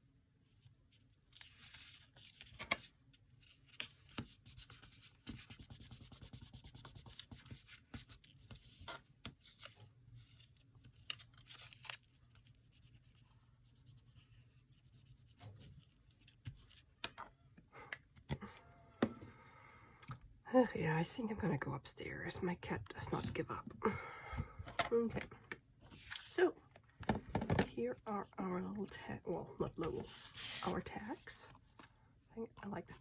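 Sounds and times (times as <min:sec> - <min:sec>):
paper rustling and tearing: 0:09.4 - 0:12.5.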